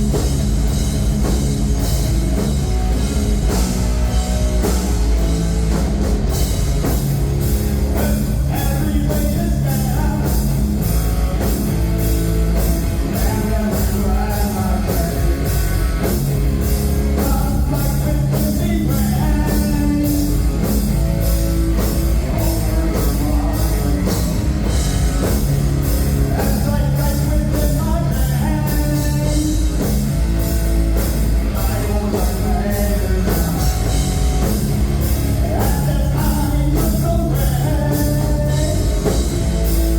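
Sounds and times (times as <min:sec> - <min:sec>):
live heavy rock band: 0:00.0 - 0:39.9
person singing: 0:07.9 - 0:10.5, 0:22.1 - 0:24.6, 0:35.4 - 0:39.3.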